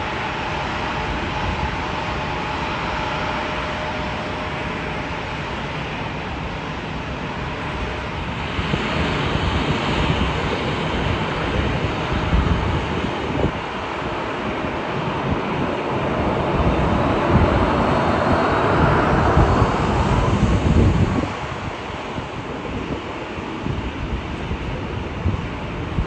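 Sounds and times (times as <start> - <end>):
jet engines passing: 0.0 - 26.0
wind buffeting microphone: 0.0 - 26.0.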